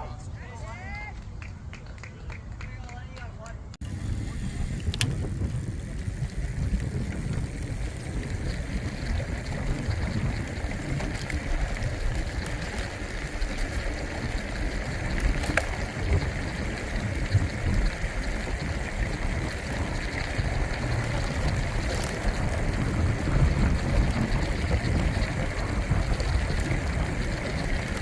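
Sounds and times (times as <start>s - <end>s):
bicycle rolling: 3.8s - 28.0s
wind on microphone: 3.8s - 28.0s.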